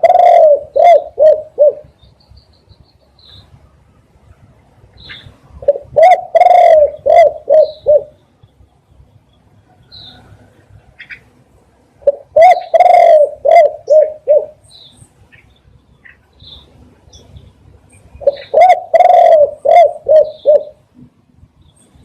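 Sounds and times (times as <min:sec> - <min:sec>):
dove cooing: 0:00.0 - 0:02.0, 0:05.1 - 0:08.2, 0:12.0 - 0:14.6, 0:18.2 - 0:20.9
small birds chirping: 0:00.0 - 0:04.1, 0:04.9 - 0:11.4, 0:12.0 - 0:22.0.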